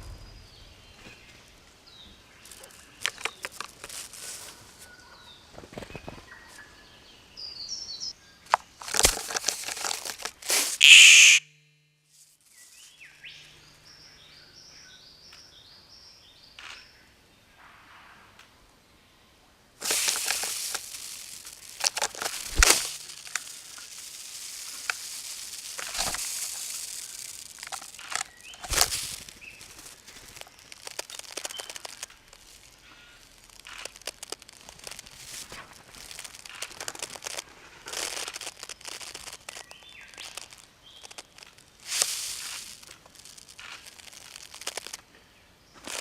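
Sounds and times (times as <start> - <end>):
wing feathers rustling: 2.4 - 4.9, 8.8 - 11.4, 19.8 - 45.0
short falling bird notes: 10.8 - 11.5.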